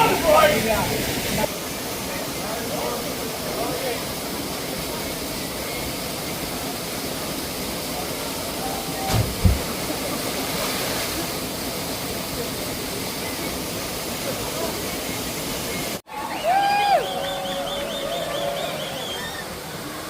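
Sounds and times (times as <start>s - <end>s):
waterfall rushing: 0.0s - 16.6s
low thumps: 9.1s - 9.9s.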